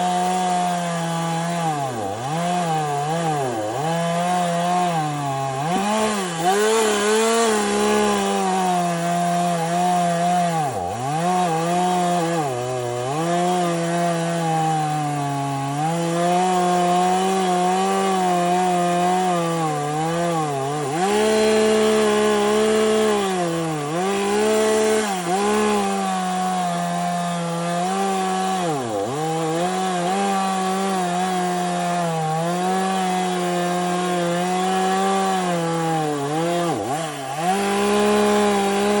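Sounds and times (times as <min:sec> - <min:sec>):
chainsaw cutting a tree: 0:00.0 - 0:39.0.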